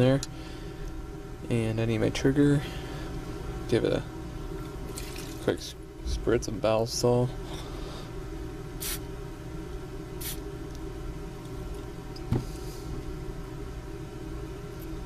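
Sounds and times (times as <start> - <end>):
low hum: 0.0 - 15.0
aerosol spray hissing: 8.8 - 9.0, 10.2 - 10.4.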